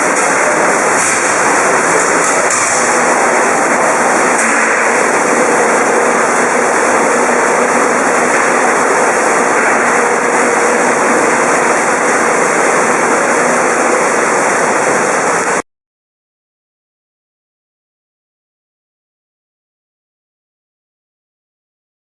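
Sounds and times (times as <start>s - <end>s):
washing machine churning water: 0.0s - 15.6s.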